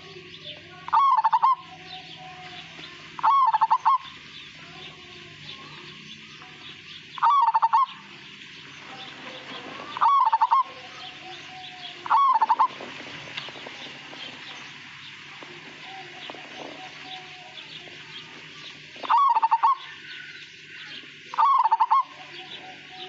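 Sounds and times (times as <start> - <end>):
steady background hiss: 0.0 - 23.0
dove cooing: 0.8 - 8.2, 9.0 - 23.0.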